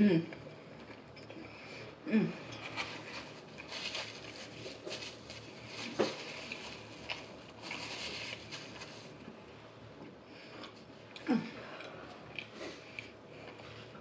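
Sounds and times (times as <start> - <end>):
chewing and wet mouth sounds: 10.0 - 14.0.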